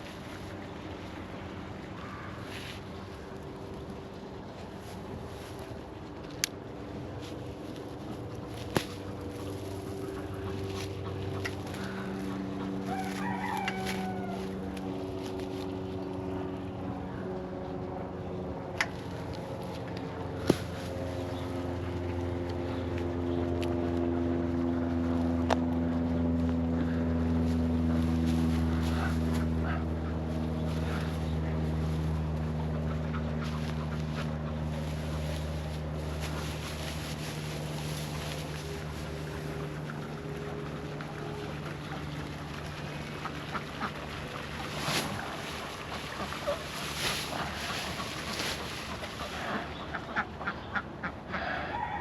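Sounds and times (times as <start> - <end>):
steady low hum: 0.0 - 52.0
ducks quacking: 8.0 - 14.8, 43.0 - 51.8.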